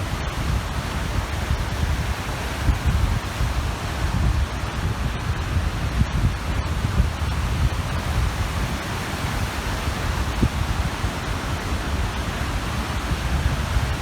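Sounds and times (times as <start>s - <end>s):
small waves washing on shore: 0.0s - 14.0s
wind buffeting microphone: 0.0s - 14.0s.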